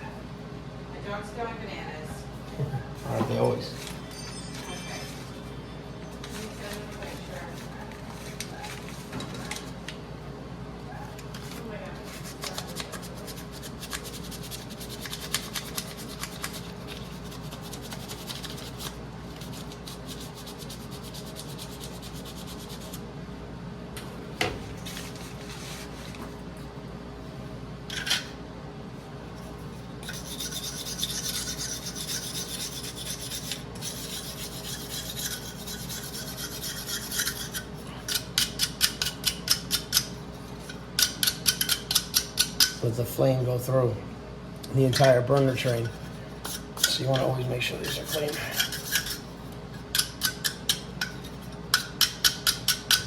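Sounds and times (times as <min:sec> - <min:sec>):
steady low hum: 0:00.0 - 0:53.0
scrubbing and scraping on metal: 0:30.0 - 0:39.9, 0:44.8 - 0:53.0.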